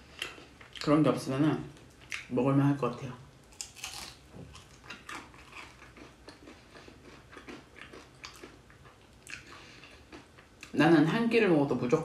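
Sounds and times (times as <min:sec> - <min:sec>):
person chewing crunchy food: 0:03.5 - 0:10.7.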